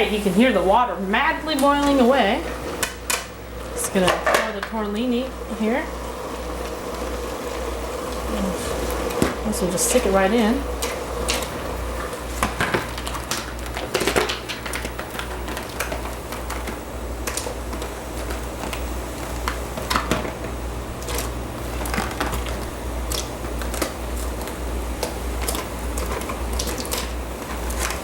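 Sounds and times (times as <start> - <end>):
steady low hum: 0.0 - 28.0
clicks and crackles in boiling water: 2.7 - 4.8, 10.7 - 28.0.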